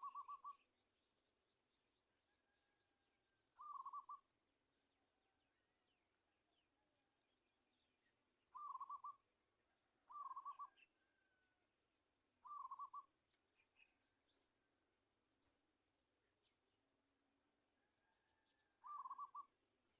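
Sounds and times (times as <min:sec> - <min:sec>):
faint high bird chirps: 0:00.0 - 0:01.2, 0:03.5 - 0:04.4, 0:07.8 - 0:09.3, 0:10.0 - 0:11.4, 0:12.4 - 0:14.6, 0:15.4 - 0:15.7, 0:18.2 - 0:19.9
bird rapidly pulsed call: 0:12.4 - 0:13.1.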